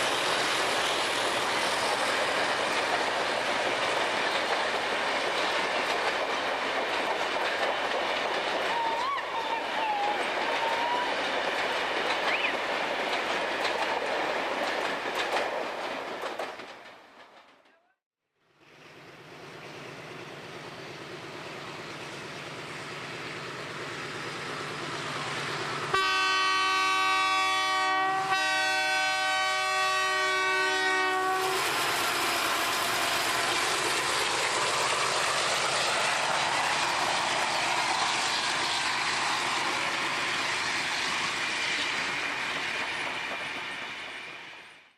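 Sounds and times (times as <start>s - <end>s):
diesel locomotive engine: 0.0s - 17.5s, 18.5s - 44.9s
train wheels passing: 0.0s - 17.8s, 18.5s - 44.9s
multi-note train air horn: 25.9s - 31.8s.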